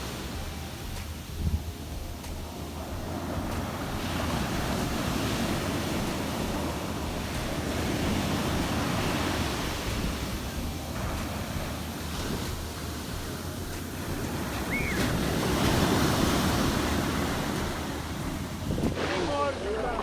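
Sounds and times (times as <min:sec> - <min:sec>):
sea surf breaking on beach: 0:00.0 - 0:20.0
wind buffeting microphone: 0:00.0 - 0:20.0.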